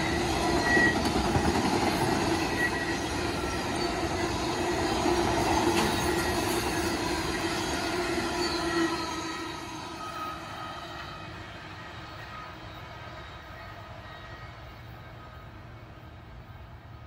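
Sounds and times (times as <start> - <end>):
wheel squeal: 0.0 - 15.4
train wheels rolling on rails: 0.0 - 17.0.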